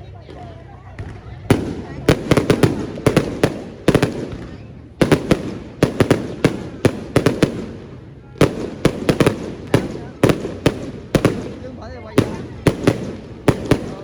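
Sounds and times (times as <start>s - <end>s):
fireworks bangs: 1.0s - 14.0s.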